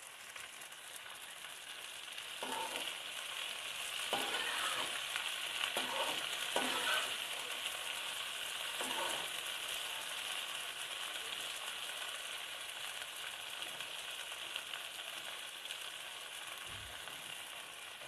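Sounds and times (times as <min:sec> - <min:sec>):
okra sizzling in hot oil: 0:00.0 - 0:18.0
metal spatula stirring: 0:02.4 - 0:03.0, 0:04.1 - 0:07.4, 0:08.8 - 0:09.4.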